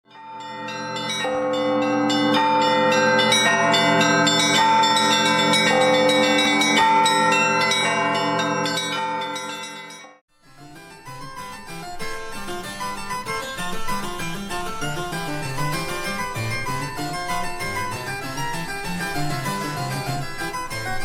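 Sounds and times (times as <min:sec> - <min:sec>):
chime-like intro melody: 0:10.8 - 0:21.0.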